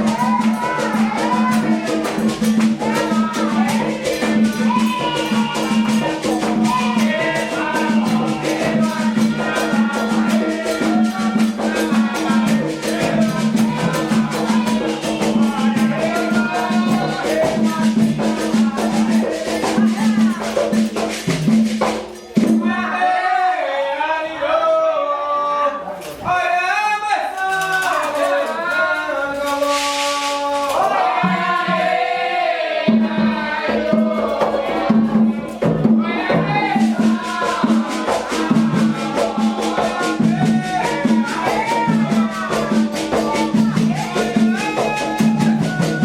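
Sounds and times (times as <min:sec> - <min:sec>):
drums playing fast rhythm: 0:00.0 - 0:22.8, 0:29.5 - 0:46.0
shakers: 0:00.0 - 0:22.8, 0:27.2 - 0:32.4, 0:33.0 - 0:46.0
voices singing: 0:00.0 - 0:46.0
low drum beat: 0:33.0 - 0:46.0.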